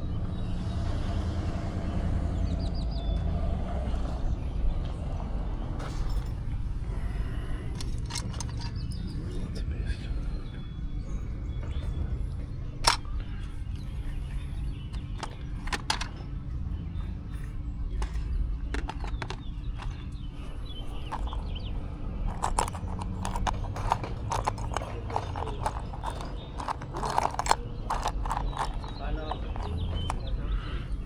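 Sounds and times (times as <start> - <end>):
steady low rumble: 4.4 - 31.0
hard objects rummaged through: 7.8 - 8.9, 14.8 - 16.2, 17.9 - 31.0.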